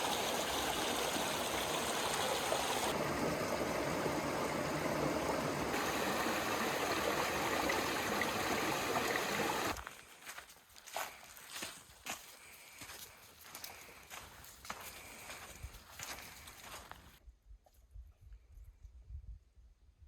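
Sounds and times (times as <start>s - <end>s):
rushing water: 0.0s - 9.8s.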